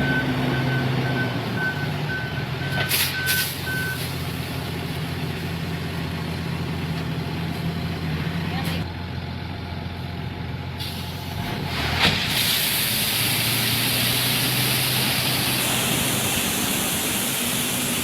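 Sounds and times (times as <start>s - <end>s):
truck engine running: 0.0s - 18.0s
loud hiss of air: 10.8s - 11.4s, 12.0s - 18.0s.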